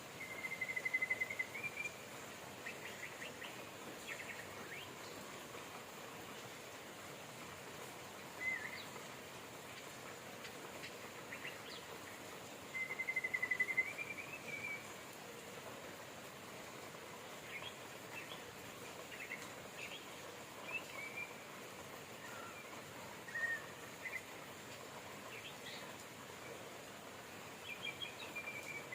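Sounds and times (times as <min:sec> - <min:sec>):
steady rain: 0:00.0 - 0:28.9.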